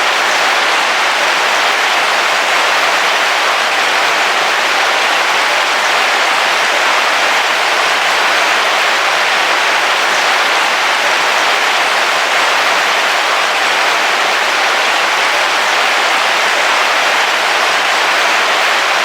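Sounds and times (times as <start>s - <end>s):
heavy rain on a roof: 0.0s - 19.0s.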